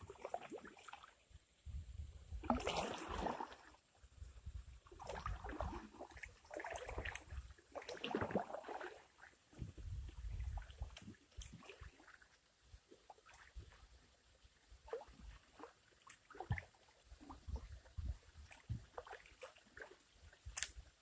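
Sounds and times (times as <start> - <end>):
paddle splashing in water: 2.4 - 3.8, 5.0 - 9.4, 14.8 - 20.0.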